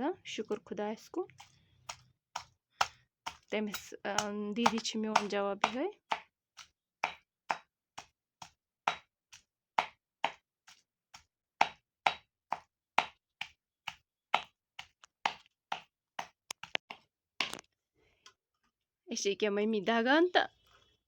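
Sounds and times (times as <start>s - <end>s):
meat being pounded: 1.4s - 17.6s.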